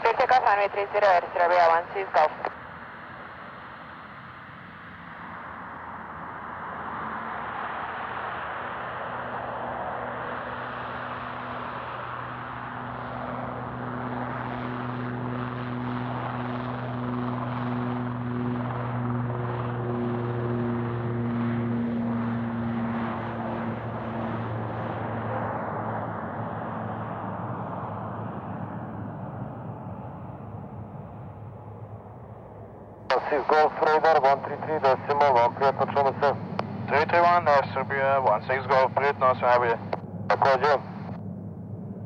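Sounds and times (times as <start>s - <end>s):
jet engine roar: 0.0s - 42.0s
low hum: 23.4s - 42.0s.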